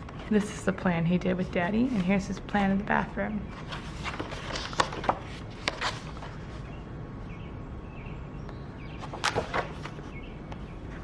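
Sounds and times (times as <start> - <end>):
notebook pages rustling: 0.0 - 6.8, 9.0 - 11.0
low room hum: 0.0 - 11.0.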